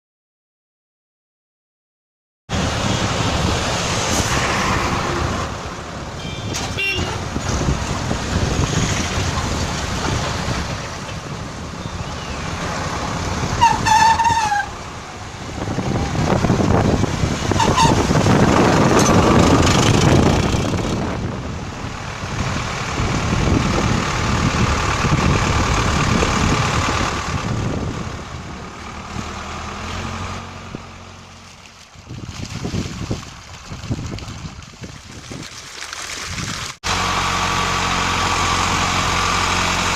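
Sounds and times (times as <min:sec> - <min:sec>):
traffic noise: 0:02.5 - 0:34.8, 0:36.7 - 0:39.9
tractor engine running: 0:02.6 - 0:34.8, 0:36.7 - 0:39.9
high-pitched horn toot: 0:06.2 - 0:07.2, 0:13.6 - 0:14.8.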